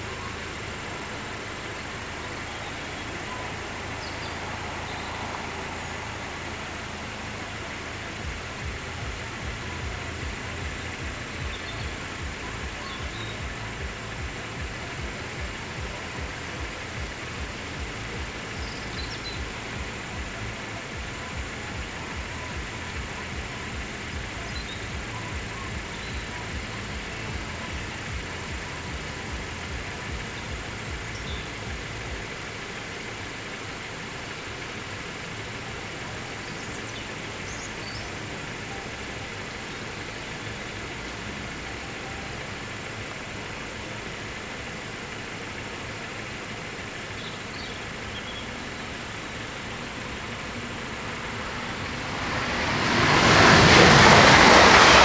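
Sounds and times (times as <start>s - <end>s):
faint bird chirps: 0.0s - 44.1s, 45.9s - 51.8s
regular ticking: 0.0s - 55.0s
vehicles idling rumble: 0.0s - 55.0s
approaching train: 49.8s - 55.0s.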